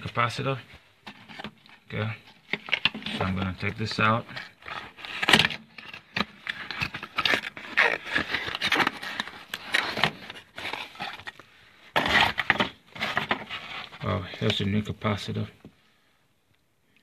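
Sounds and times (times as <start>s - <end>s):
hands unwrapping packaging: 1.2s - 14.6s.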